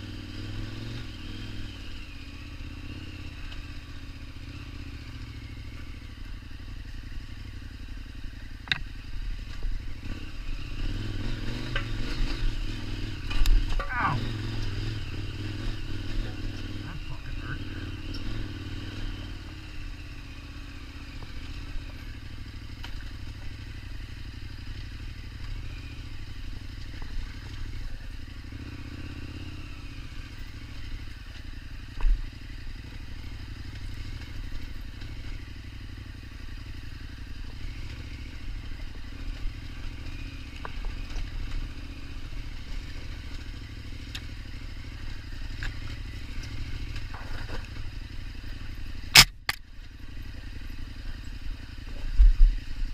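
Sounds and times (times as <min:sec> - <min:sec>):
motorcycle engine running: 0:00.0 - 0:52.9
clatter and scraping: 0:45.5 - 0:47.9.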